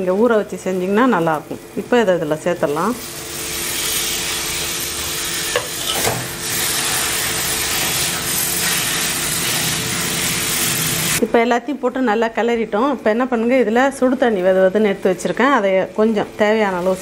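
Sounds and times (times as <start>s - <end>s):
chicken sizzling in hot oil: 0.2s - 11.2s.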